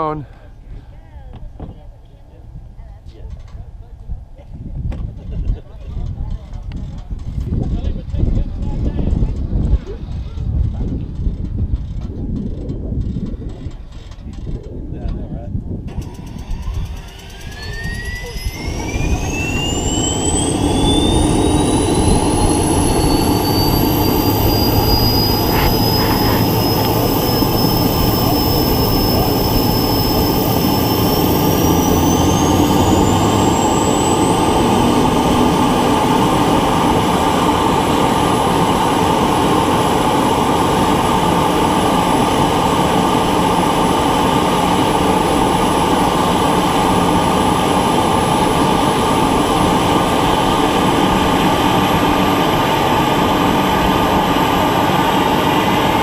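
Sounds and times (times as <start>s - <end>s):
steady rumble: 0.0s - 56.0s
jet starter turbine whine: 15.8s - 56.0s.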